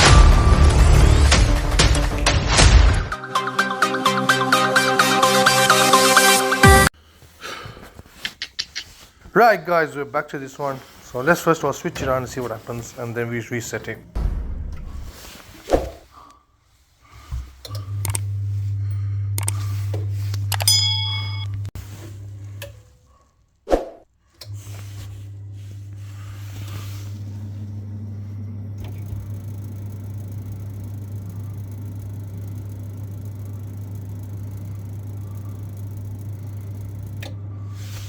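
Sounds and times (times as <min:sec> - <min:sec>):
boiler fan humming: 0:09.4 - 0:14.2, 0:17.2 - 0:23.2, 0:24.3 - 0:38.0.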